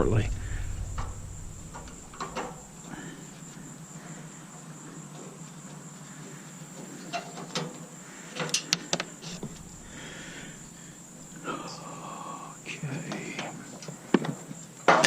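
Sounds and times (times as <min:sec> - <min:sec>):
steady high-pitched tone: 0:00.0 - 0:03.5
low hum: 0:00.0 - 0:04.4, 0:09.2 - 0:12.9.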